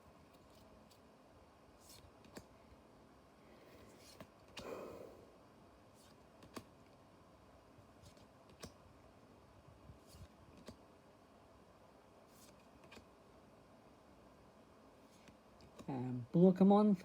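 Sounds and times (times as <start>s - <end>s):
trading cards clicking and rustling: 3.9s - 4.7s, 6.0s - 6.7s, 10.0s - 10.8s.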